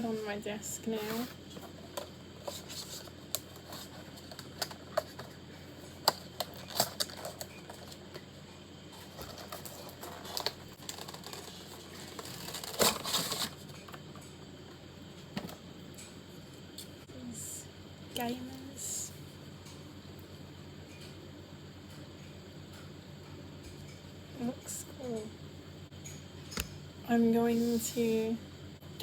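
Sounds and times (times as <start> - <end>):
packaging scuffle: 9.0 - 13.6.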